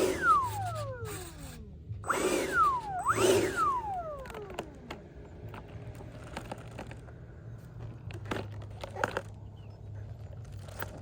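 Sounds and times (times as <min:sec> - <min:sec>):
electric fan whine spooling down: 0:00.0 - 0:05.4
low hum: 0:00.0 - 0:08.2.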